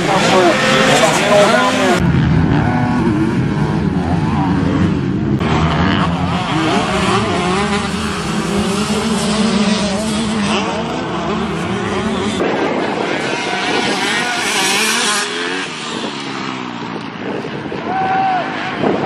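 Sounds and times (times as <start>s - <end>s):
motocross bike engines revving: 0.0s - 19.0s.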